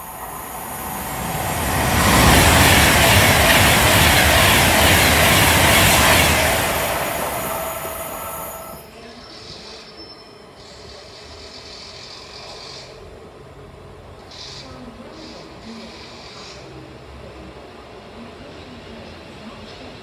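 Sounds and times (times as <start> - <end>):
train passing at speed: 0.0 - 9.0.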